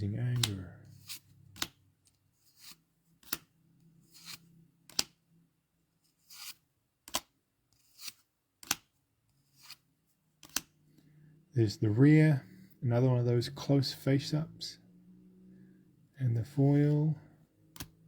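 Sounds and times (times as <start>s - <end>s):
trading cards sliding and snapping: 0.2s - 5.2s, 6.0s - 11.1s, 17.7s - 18.0s.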